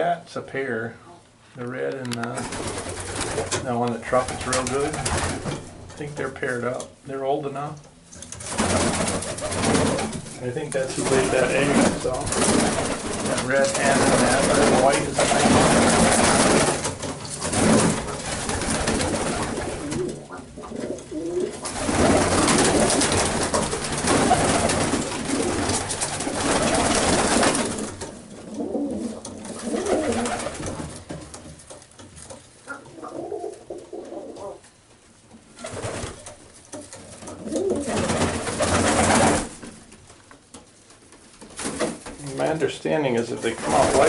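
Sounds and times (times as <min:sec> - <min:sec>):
rushing rustling noise: 0:08.4 - 0:20.2, 0:21.3 - 0:28.1
pigeons cooing: 0:18.4 - 0:23.1, 0:28.3 - 0:30.5, 0:32.7 - 0:34.6.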